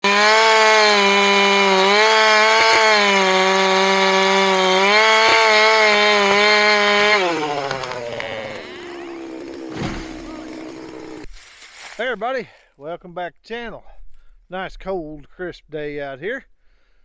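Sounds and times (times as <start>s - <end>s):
chainsaw running: 0.0s - 11.3s.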